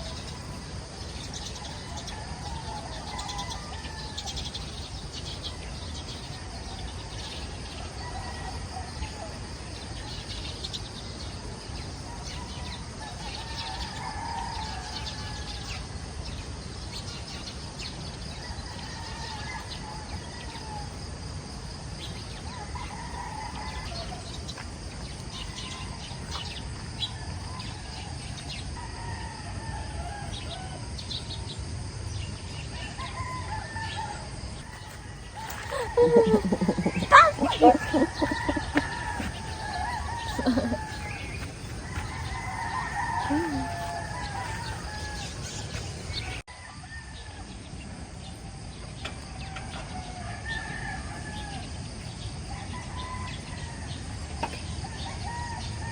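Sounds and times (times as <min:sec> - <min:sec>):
roosters crowing: 0:01.3 - 0:09.4, 0:12.0 - 0:15.8, 0:22.5 - 0:24.4, 0:25.4 - 0:31.0, 0:32.7 - 0:47.6, 0:49.2 - 0:55.9.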